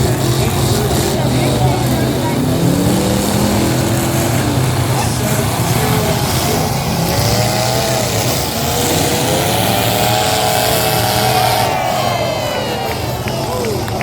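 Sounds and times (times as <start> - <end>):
car engines revving loudly: 0.0 - 14.0.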